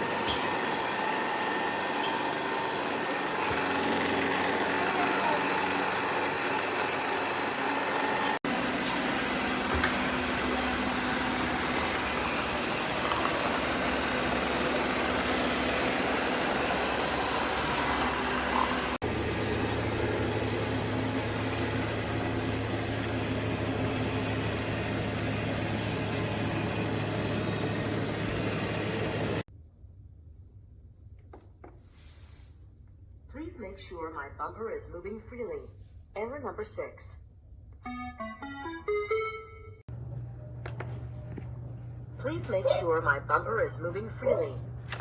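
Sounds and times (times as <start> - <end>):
robot vacuum whirring: 8.5 - 19.0.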